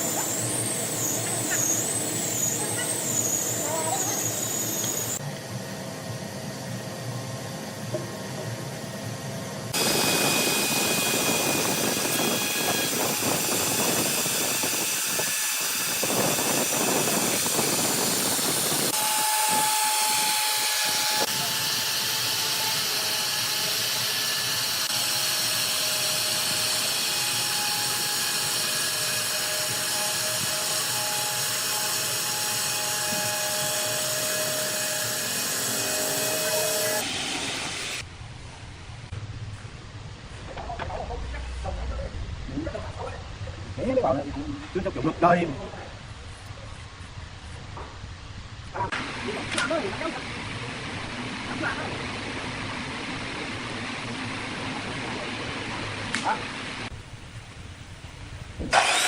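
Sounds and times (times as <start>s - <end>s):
workshop machinery hiss: 0.0s - 5.3s, 7.8s - 38.1s
machinery whining tones: 0.0s - 38.0s.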